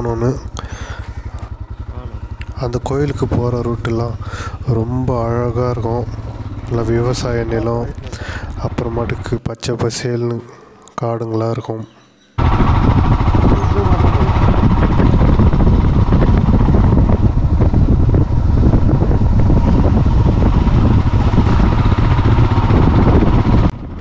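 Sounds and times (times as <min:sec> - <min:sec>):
vehicle road noise: 0:00.0 - 0:09.4, 0:12.4 - 0:24.0
wind rumble on microphone: 0:12.4 - 0:24.0.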